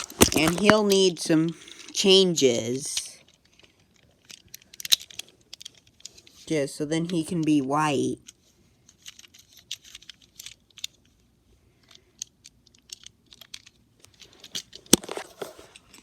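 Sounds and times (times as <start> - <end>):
small objects clicking and tapping: 0.0 - 2.0, 11.8 - 16.0.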